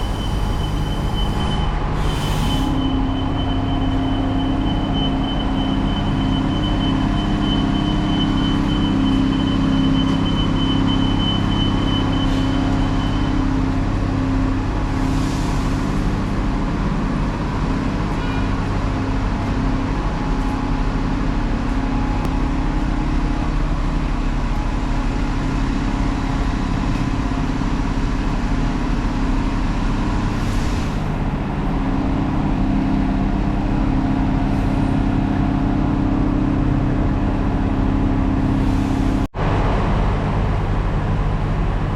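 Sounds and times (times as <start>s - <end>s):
brief hisses: 0.0s - 2.8s
road vehicle humming: 0.0s - 41.9s.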